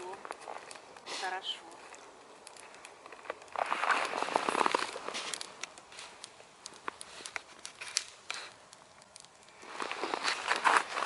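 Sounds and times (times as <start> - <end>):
campfire crackling and popping: 0.0 - 11.0
footsteps crunching on snow: 3.2 - 6.2, 9.6 - 11.0.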